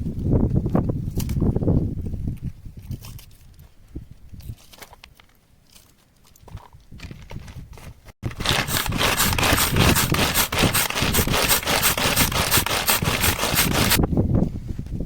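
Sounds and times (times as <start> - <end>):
rhythmic scraping: 8.3 - 14.0.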